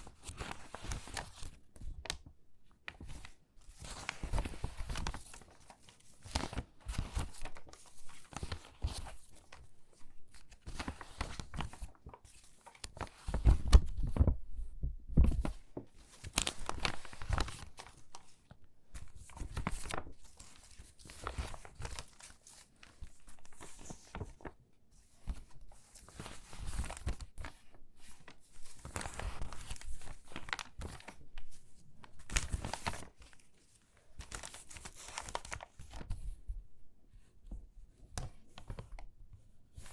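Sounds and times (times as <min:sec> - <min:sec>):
stiff paper rustling and crackling: 0:02.9 - 0:14.4, 0:19.0 - 0:24.6, 0:25.2 - 0:36.4.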